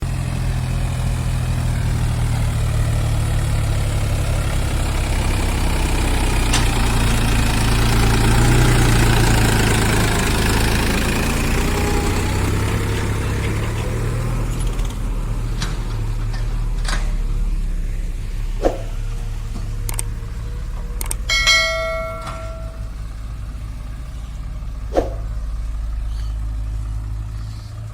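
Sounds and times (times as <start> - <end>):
heavy machinery diesel engine: 0.0 - 27.9
sharp knocks: 21.2 - 22.9.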